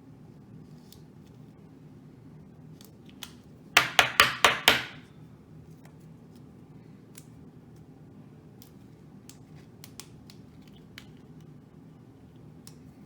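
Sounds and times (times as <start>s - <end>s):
plastic card holder tapping: 3.8s - 5.0s
light clicks of handled cards: 5.7s - 11.6s, 12.2s - 13.0s.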